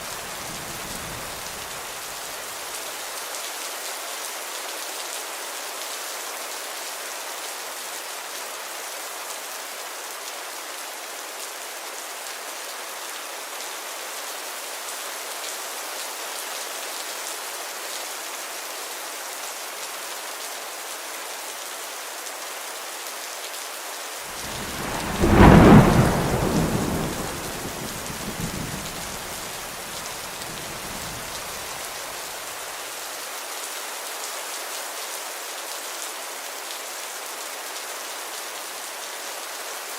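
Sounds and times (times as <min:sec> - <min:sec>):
steady rain hissing: 0:00.0 - 0:39.9
thunder crack and rumble: 0:24.4 - 0:31.8.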